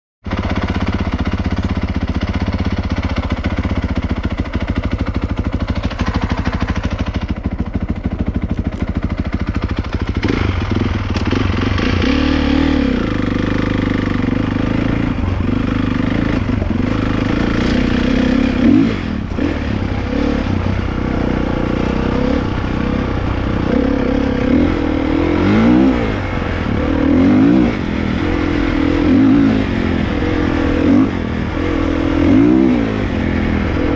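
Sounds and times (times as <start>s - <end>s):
dirt bike engines revving: 8.7s - 33.9s.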